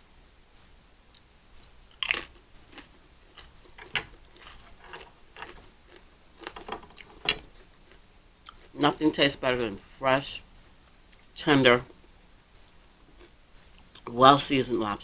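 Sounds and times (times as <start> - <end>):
chewing with wet mouth clicks: 1.9 - 8.7.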